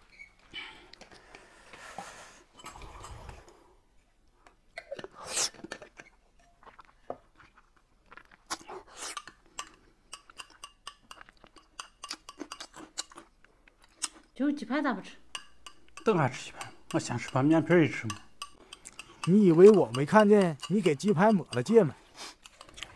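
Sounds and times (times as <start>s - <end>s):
chewing: 4.4s - 14.4s, 15.4s - 22.9s
chopsticks and spoon clicking on bowls: 9.1s - 14.3s, 15.2s - 22.9s.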